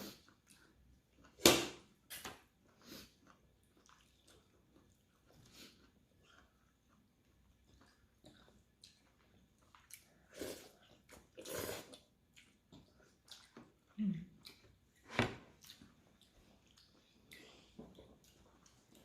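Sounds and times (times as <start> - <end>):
slurping noodle soup: 9.7 - 13.6.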